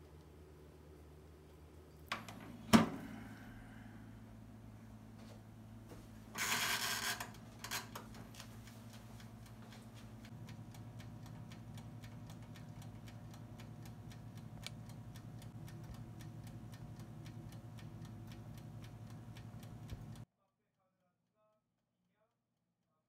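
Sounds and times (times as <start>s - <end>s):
oven humming: 0.0s - 20.2s
wind-up timer ticking: 6.4s - 20.3s.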